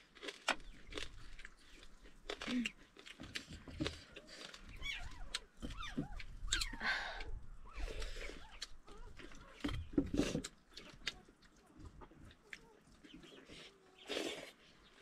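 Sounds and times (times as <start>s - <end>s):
crunching of fried food: 0.0s - 6.7s
chewing and lip-smacking: 0.0s - 15.0s.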